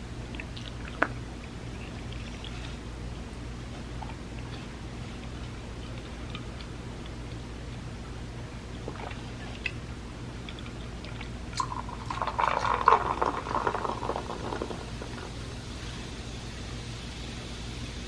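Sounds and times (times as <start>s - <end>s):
liquid pouring: 10.5s - 17.7s.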